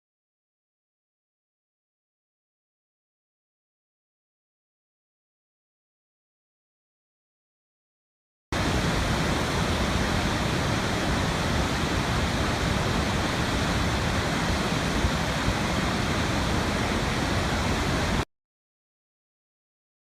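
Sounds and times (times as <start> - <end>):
running water rushing: 8.6 - 18.2.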